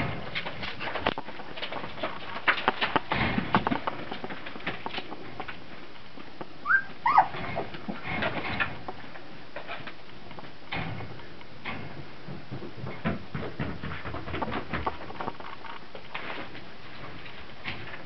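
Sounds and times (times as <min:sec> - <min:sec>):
puppies scuffling and clicking: 0:00.0 - 0:18.0
puppy squeaks: 0:06.6 - 0:07.4.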